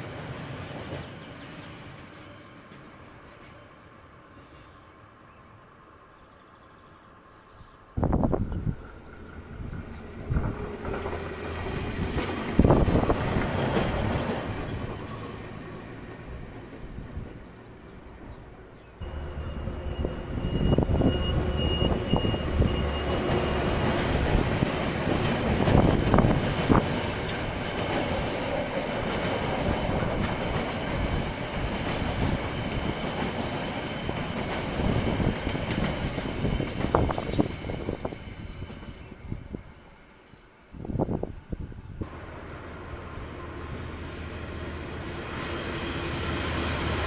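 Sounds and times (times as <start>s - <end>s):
train engine hum: 0.0s - 47.0s
train cars rumbling over rail joints: 8.0s - 39.7s.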